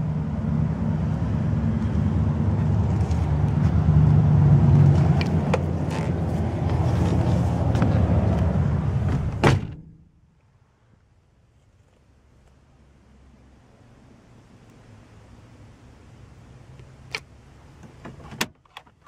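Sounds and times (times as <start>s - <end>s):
vehicle engine idling: 0.0s - 9.4s
car door shutting: 9.0s - 9.9s.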